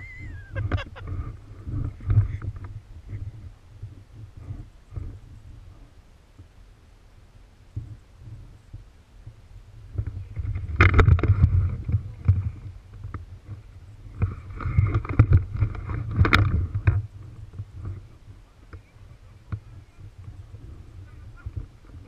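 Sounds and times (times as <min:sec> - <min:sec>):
rustling and crunching dry grass: 0:07.7 - 0:22.0.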